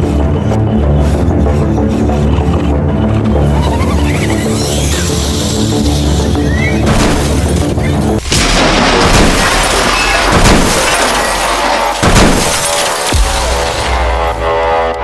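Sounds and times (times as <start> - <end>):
music: 0.0 - 15.0
heavy impacts: 6.9 - 14.5
glass breaking: 8.2 - 13.8
loud crashing and smashing: 8.2 - 14.3.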